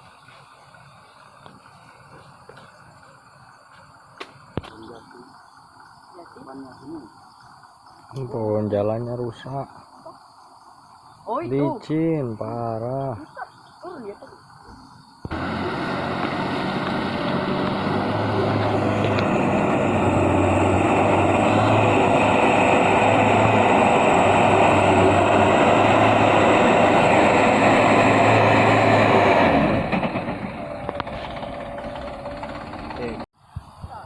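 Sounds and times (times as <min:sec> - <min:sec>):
truck engine revving hard: 0:15.3 - 0:33.3.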